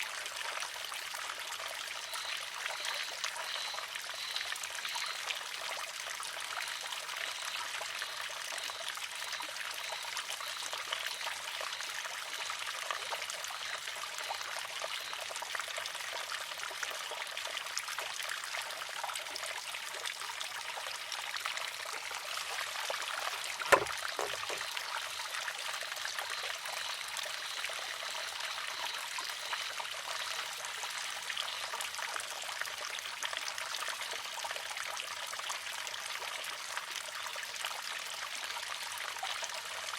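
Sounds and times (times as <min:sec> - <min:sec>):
water trickling: 0:00.0 - 0:39.9
bamboo arm clacking on rock: 0:23.4 - 0:24.7.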